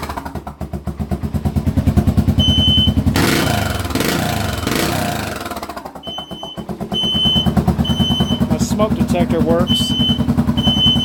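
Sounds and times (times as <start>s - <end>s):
motorcycle engine idling and revving: 0.0s - 11.0s
smoke alarm beep: 2.4s - 3.0s, 6.0s - 8.5s, 9.6s - 11.0s.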